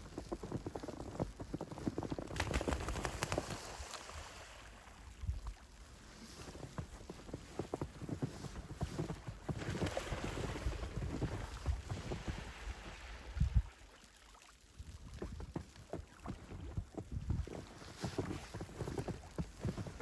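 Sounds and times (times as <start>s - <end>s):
footsteps crunching in snow: 6.2s - 12.4s, 15.9s - 20.0s.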